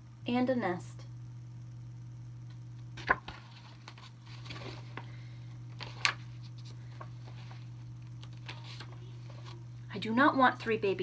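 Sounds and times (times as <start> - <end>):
steady low hum: 0.0 - 11.0
book pages flicking: 3.0 - 5.1, 5.8 - 9.6.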